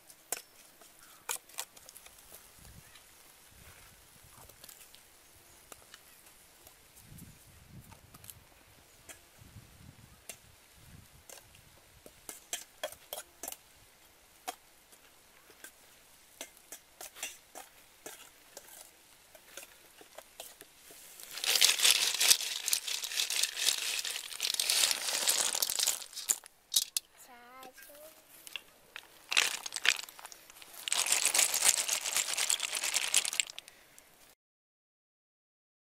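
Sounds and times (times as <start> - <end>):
snail shells clattering onto tray: 21.2 - 27.0, 28.5 - 33.7.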